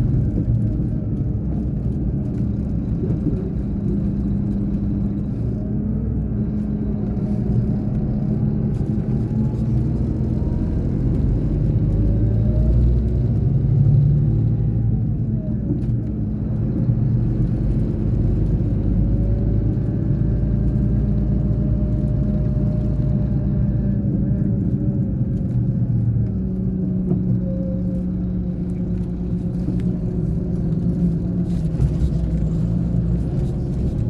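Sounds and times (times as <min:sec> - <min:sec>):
bus diesel engine rumbling: 0:00.0 - 0:34.0.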